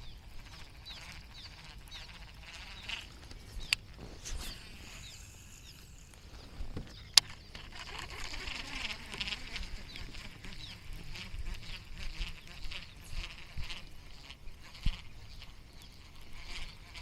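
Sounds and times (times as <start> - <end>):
high chirps and trills: 1.4 - 8.3.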